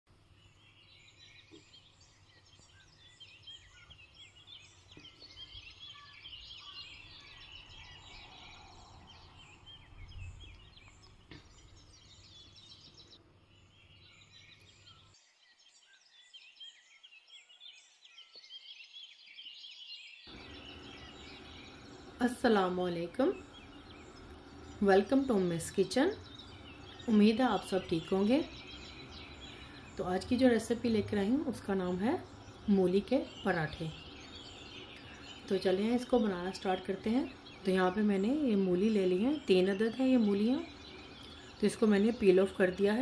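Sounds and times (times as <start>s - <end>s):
small birds chirping: 0.1s - 43.0s.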